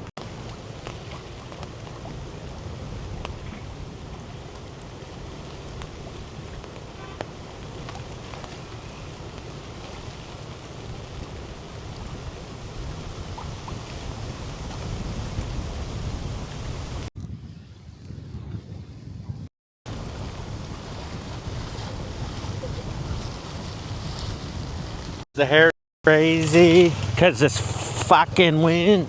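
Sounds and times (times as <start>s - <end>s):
wind buffeting microphone: 0.0s - 25.2s
rain hiss: 0.2s - 17.1s, 19.9s - 22.2s, 26.1s - 28.3s.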